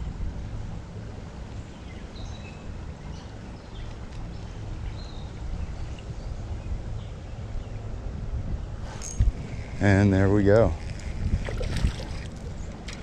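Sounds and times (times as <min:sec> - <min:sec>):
wind on microphone: 0:04.8 - 0:13.0
creek water flowing: 0:09.3 - 0:13.0.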